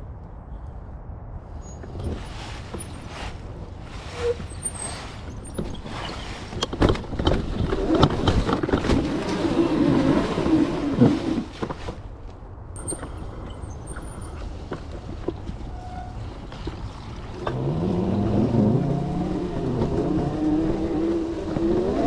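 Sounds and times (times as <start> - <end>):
tyre noise on rough trail: 1.4 - 22.0
bike knocking over bumps: 5.3 - 9.4.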